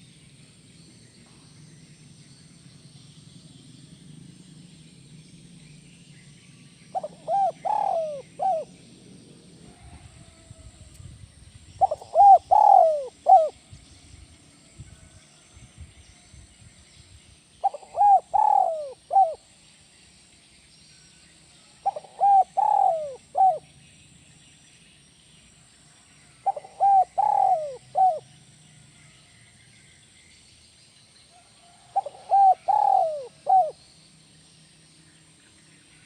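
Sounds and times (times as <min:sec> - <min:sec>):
dove cooing: 0:06.9 - 0:08.8, 0:11.8 - 0:13.6, 0:17.6 - 0:19.4, 0:21.8 - 0:23.6, 0:26.4 - 0:28.3, 0:31.7 - 0:33.8.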